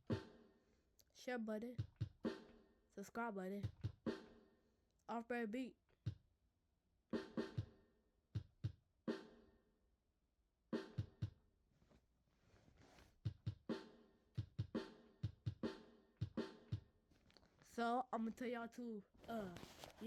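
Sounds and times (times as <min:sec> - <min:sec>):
hip-hop drum beat: 0:00.0 - 0:00.4, 0:01.6 - 0:02.6, 0:03.6 - 0:04.4, 0:07.2 - 0:07.8, 0:08.4 - 0:09.4, 0:10.8 - 0:11.4, 0:13.2 - 0:17.0.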